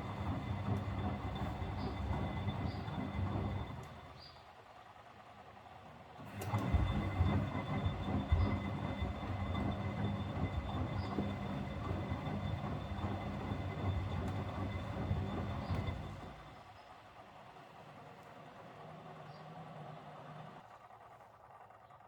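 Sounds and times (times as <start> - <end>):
washing machine motor rumbling: 0.0 - 22.0.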